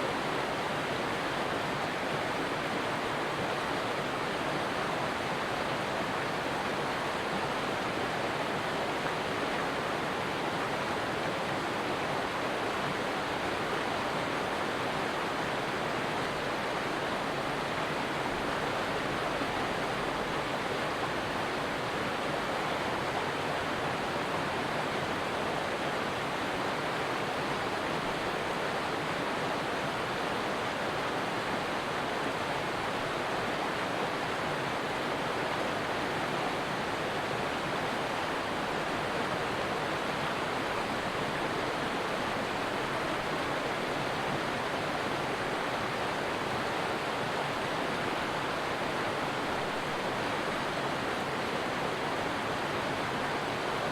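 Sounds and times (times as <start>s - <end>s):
stream water running: 0.0s - 53.9s.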